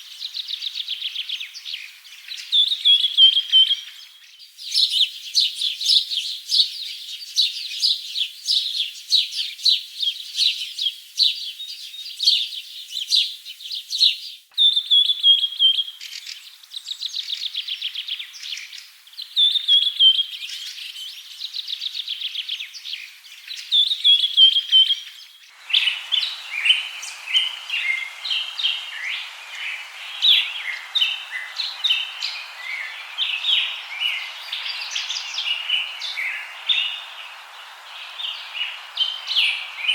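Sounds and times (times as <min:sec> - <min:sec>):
steady hiss: 0:00.0 - 0:21.4, 0:23.2 - 0:39.9
birds chirping and trilling: 0:00.0 - 0:39.9.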